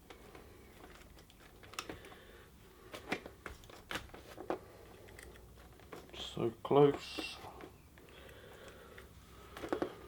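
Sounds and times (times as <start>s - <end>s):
hard parts clicking and knocking: 6.8s - 10.0s.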